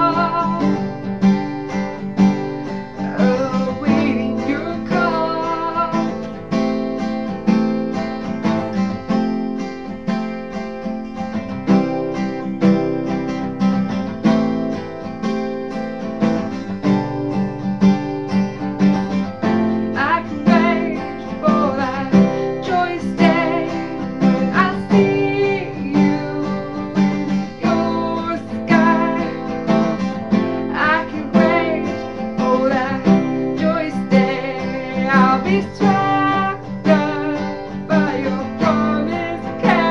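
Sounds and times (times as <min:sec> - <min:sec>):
woman singing: 0:00.0 - 0:01.2, 0:02.7 - 0:06.8, 0:19.5 - 0:39.9
acoustic guitar strummed: 0:00.0 - 0:39.9.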